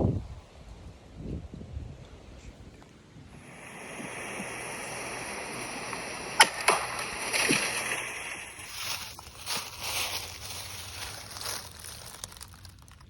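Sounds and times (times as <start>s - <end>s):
sharp crack: 3.4s - 13.0s.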